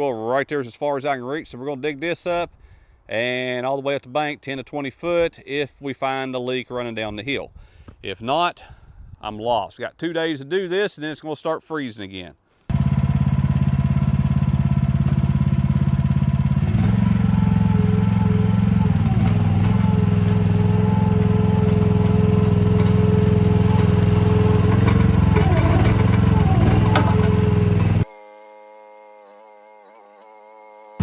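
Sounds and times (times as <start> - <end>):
mini excavator engine running: 12.7 - 28.1
steady machine whine: 12.9 - 28.1.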